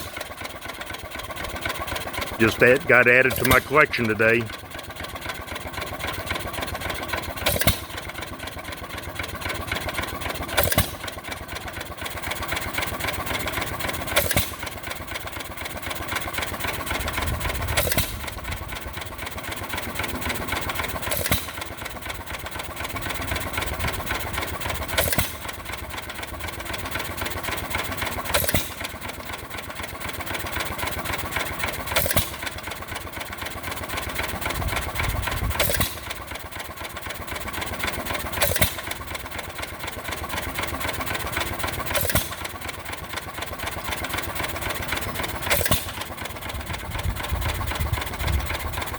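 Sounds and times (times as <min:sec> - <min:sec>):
light engine clatter: 0:00.0 - 0:48.9
hit-and-miss engine firing: 0:02.4 - 0:04.5, 0:35.4 - 0:36.2, 0:41.9 - 0:42.5, 0:45.4 - 0:46.2.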